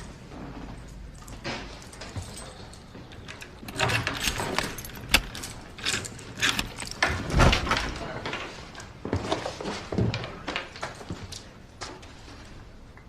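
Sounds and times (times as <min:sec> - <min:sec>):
sharp clicks and knocks: 0:03.1 - 0:07.8.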